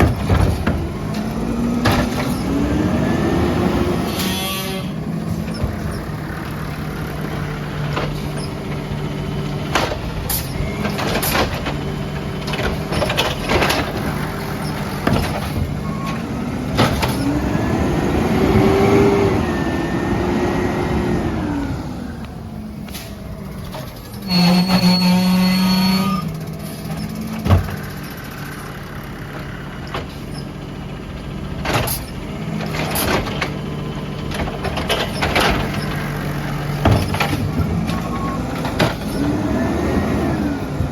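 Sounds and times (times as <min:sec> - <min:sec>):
clanks and knocks: 0:00.0 - 0:02.6, 0:04.1 - 0:08.9, 0:09.5 - 0:17.4, 0:26.2 - 0:28.5, 0:29.4 - 0:30.6, 0:31.5 - 0:39.4
hydraulic whine: 0:00.0 - 0:30.8
truck engine running: 0:00.0 - 0:40.9
loud steady tone: 0:24.2 - 0:26.4.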